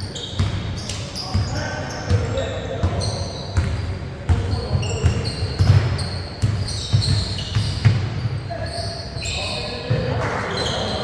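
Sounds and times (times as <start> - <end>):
sneakers squeaking on court: 0.0 - 11.0
voices echoing: 0.0 - 11.0
basketballs bouncing on gym floor: 0.2 - 8.7.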